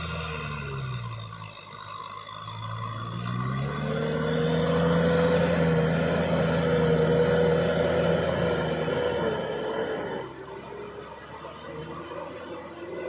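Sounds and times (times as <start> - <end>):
tractor engine revving: 0.0 - 13.0.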